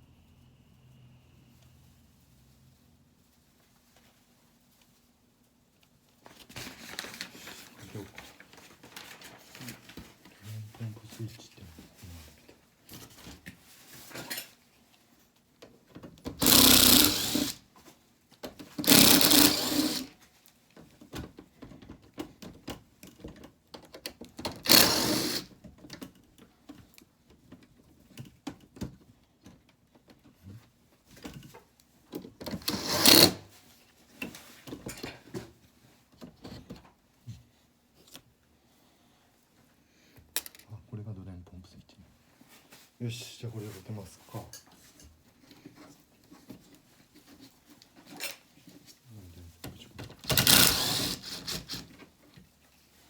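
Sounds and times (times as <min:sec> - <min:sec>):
power drill bursts: 0:16.4 - 0:17.6, 0:18.8 - 0:20.1, 0:24.6 - 0:25.5, 0:32.7 - 0:33.4, 0:50.3 - 0:51.8.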